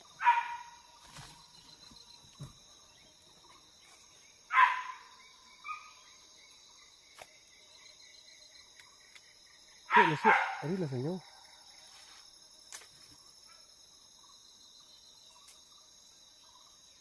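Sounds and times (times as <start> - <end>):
insects buzzing: 0.0 - 17.0
animal call: 9.9 - 11.3.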